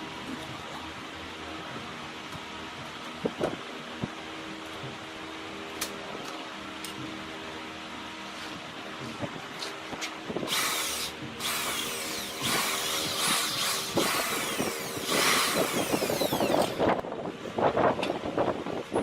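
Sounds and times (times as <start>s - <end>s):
power tool cutting wood: 10.5s - 17.0s
power tool motor hum: 10.5s - 17.0s.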